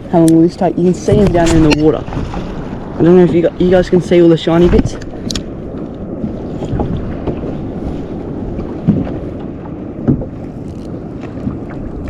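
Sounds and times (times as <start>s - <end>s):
water lapping against hull: 0.0s - 12.0s
wind buffeting microphone: 0.0s - 12.0s
light knocks on hull: 8.6s - 10.4s.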